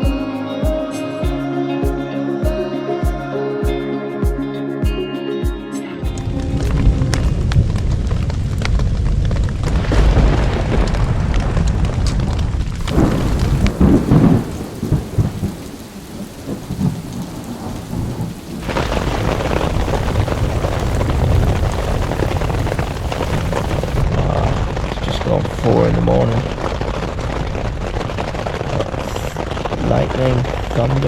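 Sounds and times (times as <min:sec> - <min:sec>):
heavy rain falling: 0:06.4 - 0:31.0
rolling thunder rumbles: 0:06.6 - 0:31.0.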